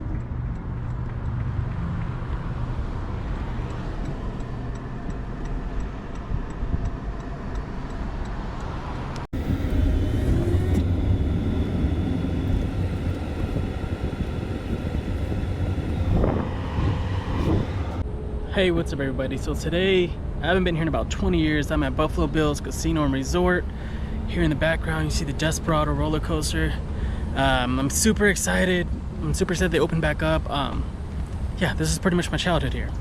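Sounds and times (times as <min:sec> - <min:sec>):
road vehicle noise: 0:00.0 - 0:33.0
low rumble: 0:09.4 - 0:21.0.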